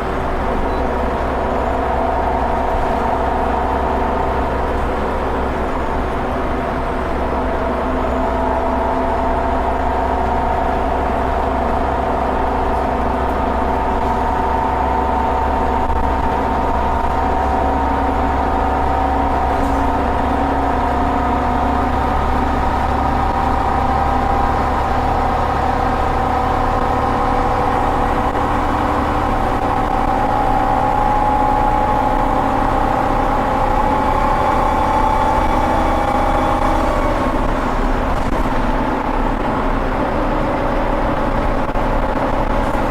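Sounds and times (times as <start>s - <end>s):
bus engine rumbling: 0.0s - 42.9s
rising whine: 0.2s - 40.8s.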